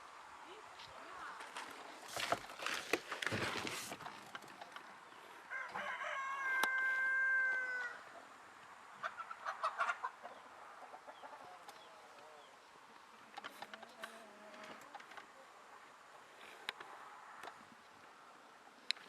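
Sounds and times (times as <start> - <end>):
rooster crowing: 5.5 - 8.2.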